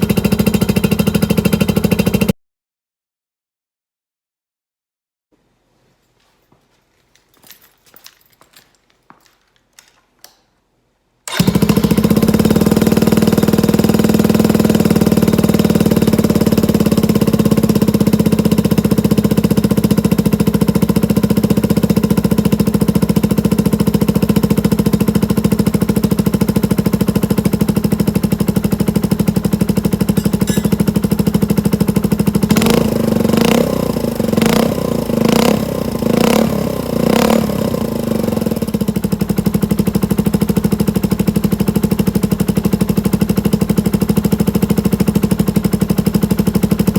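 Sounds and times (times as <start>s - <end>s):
motorcycle engine idling and revving: 0.0s - 2.4s, 11.3s - 46.9s.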